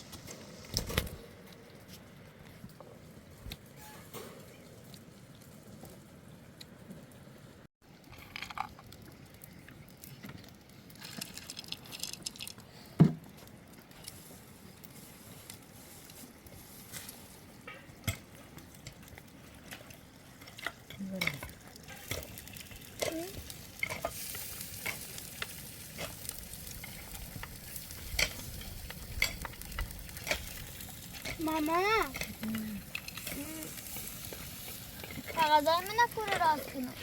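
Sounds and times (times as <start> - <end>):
food sizzling in a frying pan: 18.8 - 37.0.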